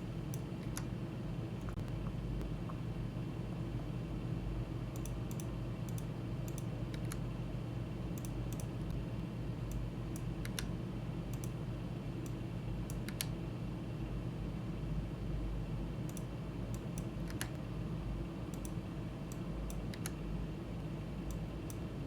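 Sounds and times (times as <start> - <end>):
steady low hum: 0.0 - 22.0
keyboard and mouse clicks: 0.3 - 0.9, 5.0 - 7.2, 9.7 - 10.7, 11.3 - 11.6, 12.2 - 13.3, 16.1 - 17.6, 18.5 - 20.2.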